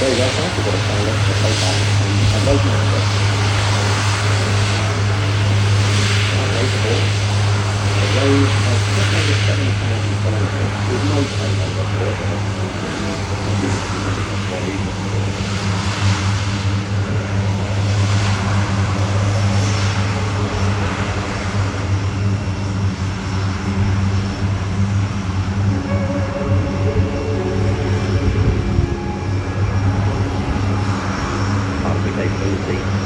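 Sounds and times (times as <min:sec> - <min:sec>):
turboprop engines droning: 0:00.0 - 0:33.0.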